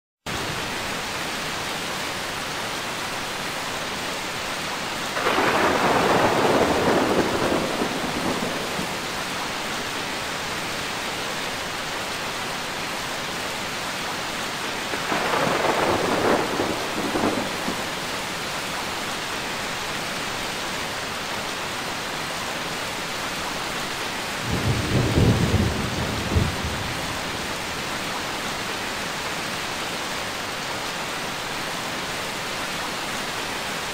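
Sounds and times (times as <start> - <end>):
steady rain hissing: 0.3 - 33.9
thunder rolling: 5.2 - 9.2, 14.9 - 18.0, 24.4 - 27.6.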